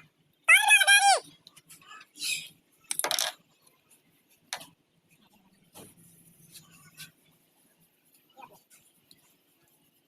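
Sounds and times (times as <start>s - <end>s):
small metal parts clinking: 2.9s - 3.4s.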